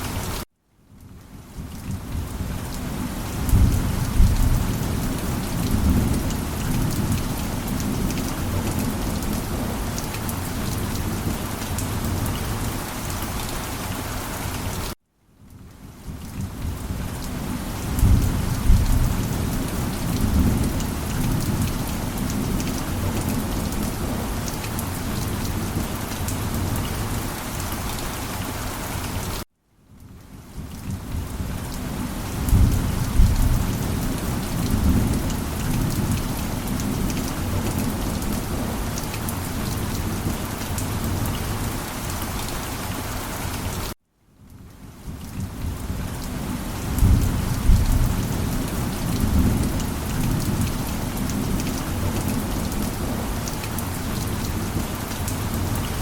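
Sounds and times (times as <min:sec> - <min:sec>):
heavy rain: 0:00.0 - 0:56.0
rolling thunder: 0:03.4 - 0:07.2, 0:17.8 - 0:23.8, 0:32.4 - 0:38.7, 0:46.9 - 0:50.7.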